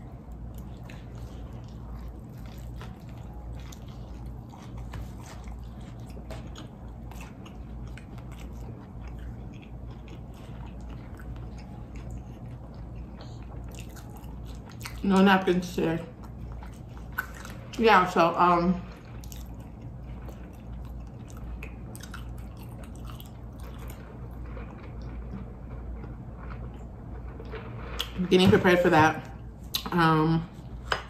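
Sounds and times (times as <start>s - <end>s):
crunchy chewing: 0.0s - 15.0s, 18.9s - 28.2s.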